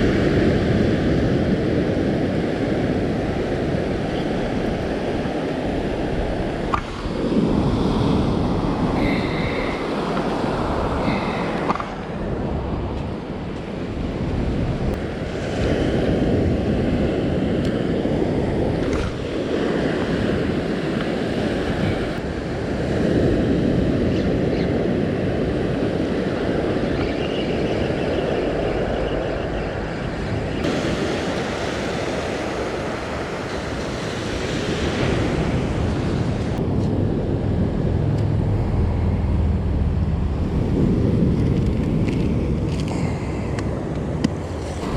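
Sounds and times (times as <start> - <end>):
wind buffeting microphone: 0.0 - 44.9
surf breaking on beach: 30.6 - 36.8.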